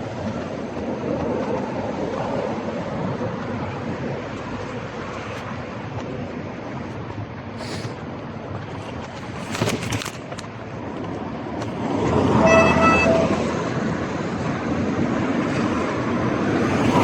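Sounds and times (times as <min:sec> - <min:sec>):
traffic and road noise: 0:00.0 - 0:17.0
vehicle horn toot: 0:12.3 - 0:13.7.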